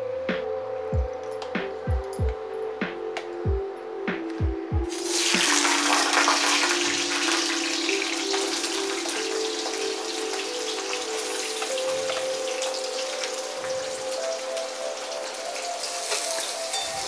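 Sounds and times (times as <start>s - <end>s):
background music with held tones: 0.0s - 17.0s
potatoes frying in hot oil: 4.9s - 17.0s.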